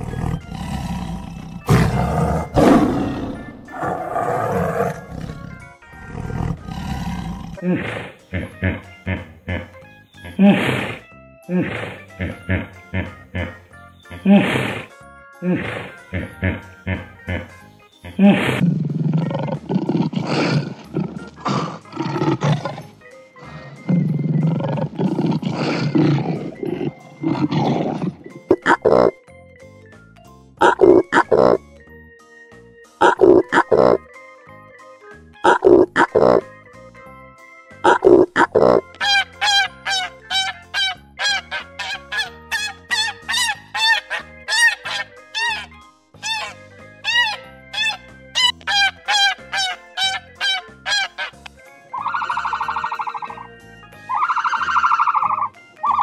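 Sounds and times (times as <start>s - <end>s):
tiger roaring and growling: 0.0s - 13.6s, 14.2s - 29.2s, 30.6s - 31.6s, 33.0s - 34.0s, 37.8s - 39.0s
background music: 0.0s - 56.0s.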